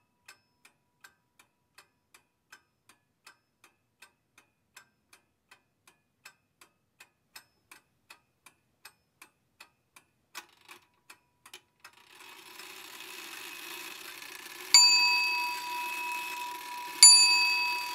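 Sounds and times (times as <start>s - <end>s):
clock ticking: 0.2s - 17.9s
bell ringing: 14.6s - 17.9s.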